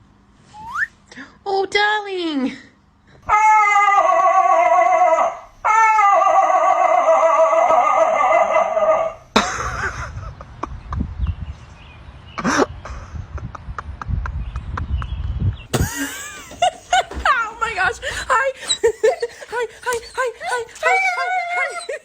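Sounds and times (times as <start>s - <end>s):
dog howling: 3.3s - 9.2s, 18.6s - 22.0s
dog yelping: 3.3s - 9.2s, 18.0s - 22.0s.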